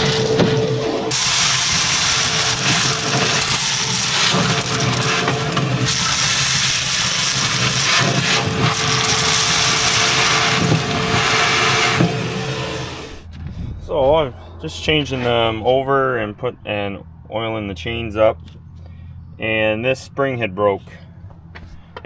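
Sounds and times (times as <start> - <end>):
vacuum sucking seed: 0.0 - 13.2.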